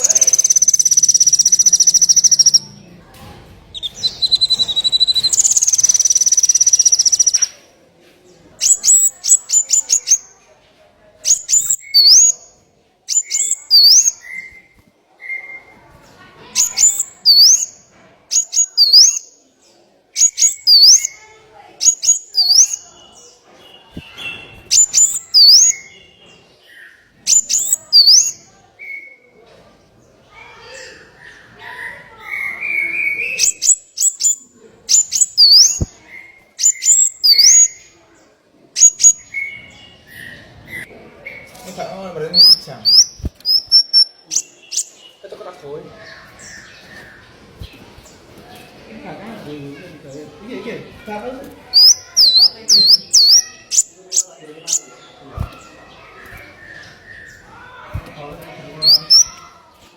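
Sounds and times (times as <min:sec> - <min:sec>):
small songbird chirping: 0:00.0 - 0:03.1, 0:03.7 - 0:07.6, 0:08.4 - 0:10.4, 0:11.2 - 0:15.8, 0:16.4 - 0:29.2, 0:32.3 - 0:38.2, 0:38.8 - 0:59.8
rising bird whistle: 0:03.8 - 0:07.4.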